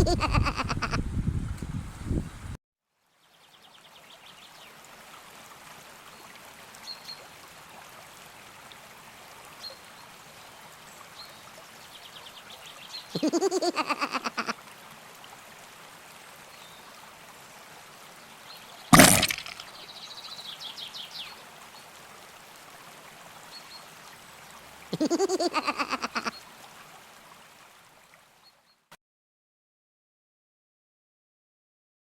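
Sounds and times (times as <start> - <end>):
river water flowing: 3.7 - 28.7
loud sudden noise: 18.9 - 19.6.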